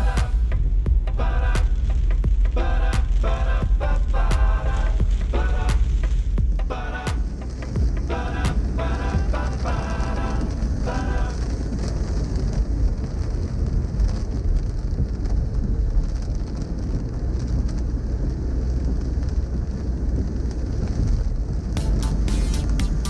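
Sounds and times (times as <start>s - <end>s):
music: 0.0s - 11.4s, 21.8s - 23.0s
rain on car windshield and roof: 9.6s - 21.8s
engine and tyres on wet road: 11.5s - 21.8s.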